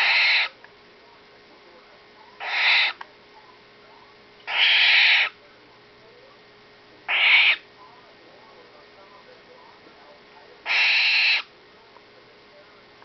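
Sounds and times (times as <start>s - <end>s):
owl chick hissing calls: 0.0s - 0.6s, 2.4s - 3.0s, 4.5s - 5.4s, 7.1s - 7.6s, 10.6s - 11.5s.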